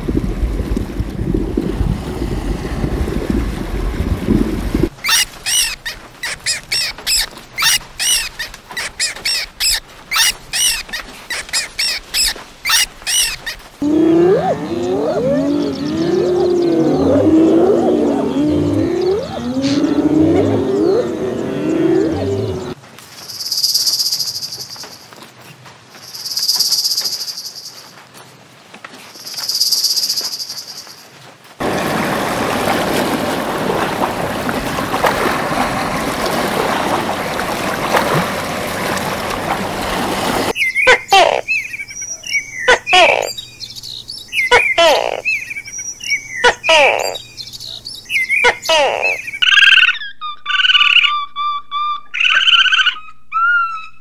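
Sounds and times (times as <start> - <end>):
hyenas calling: 13.8 - 22.8
rushing water hiss: 31.6 - 40.6.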